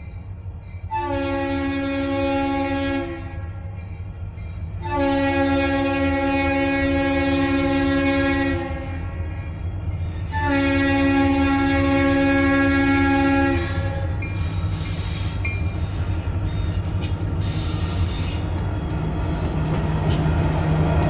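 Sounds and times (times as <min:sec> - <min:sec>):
locomotive engine and train rumble: 0:00.0 - 0:21.0
locomotive air horn chord: 0:00.9 - 0:03.7, 0:04.8 - 0:09.2, 0:10.2 - 0:15.3
wheels screeching: 0:14.2 - 0:21.0.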